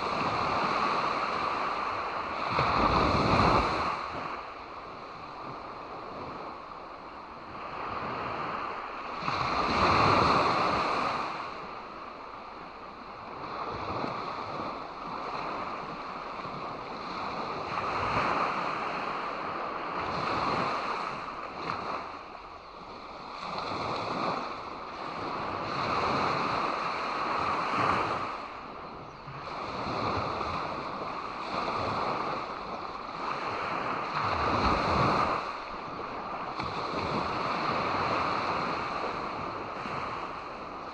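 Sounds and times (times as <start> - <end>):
sea waves breaking on shore: 0.0 - 40.9.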